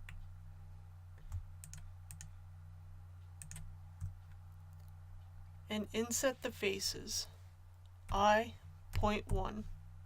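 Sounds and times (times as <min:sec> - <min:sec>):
low electrical hum: 0:00.0 - 0:10.0
keyboard and mouse clicks: 0:01.2 - 0:02.4, 0:03.3 - 0:05.0.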